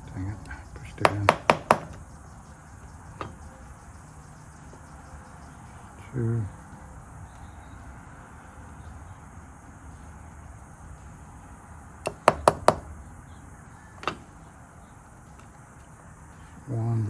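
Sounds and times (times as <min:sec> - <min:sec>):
metallic clicks of lock parts: 0:13.9 - 0:14.4.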